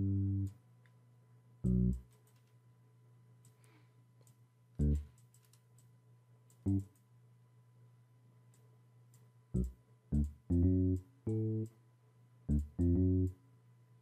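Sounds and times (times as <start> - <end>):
low bass notes: 0.0 - 0.5, 1.6 - 2.0, 4.8 - 5.1, 6.7 - 6.9, 9.6 - 11.7, 12.5 - 13.4.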